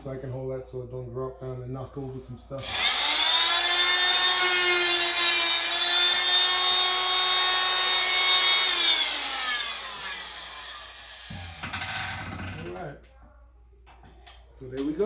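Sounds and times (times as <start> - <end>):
power saw cutting drywall: 2.6 - 12.8.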